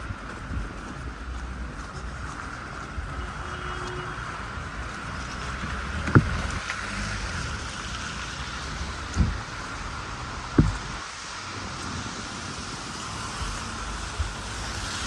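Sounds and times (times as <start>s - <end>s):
low traffic rumble: 0.0s - 15.0s
wind-like hiss: 5.3s - 15.0s
dull thumps: 6.0s - 6.5s, 9.1s - 9.7s, 10.4s - 11.2s.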